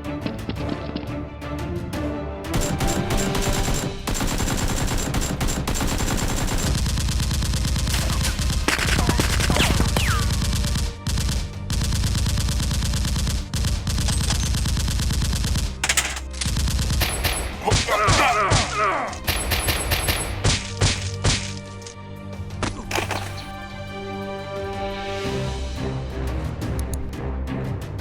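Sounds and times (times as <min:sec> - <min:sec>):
rapid automatic gunfire: 0:02.6 - 0:17.8, 0:19.2 - 0:21.0.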